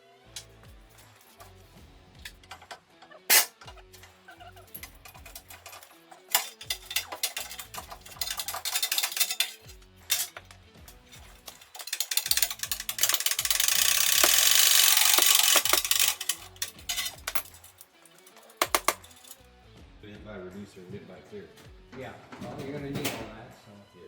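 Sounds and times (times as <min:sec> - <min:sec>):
background music with bass: 0:00.0 - 0:24.0
metal tools clinking: 0:02.2 - 0:19.4.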